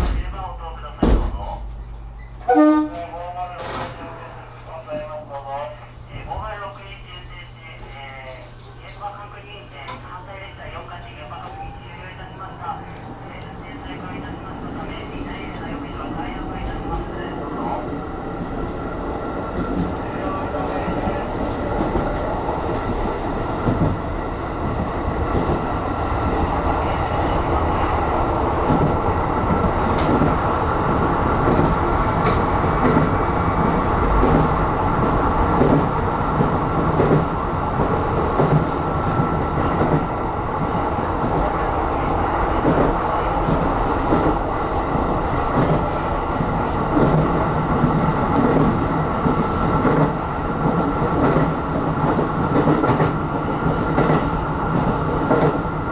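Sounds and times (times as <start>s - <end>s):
train wheels rumbling on rail: 0.0s - 55.9s.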